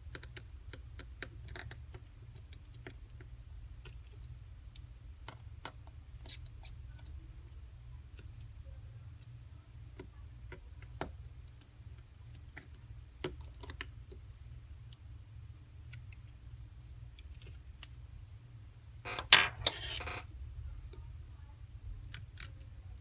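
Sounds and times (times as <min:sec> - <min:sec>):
rattling scrape: 0:19.1 - 0:20.2.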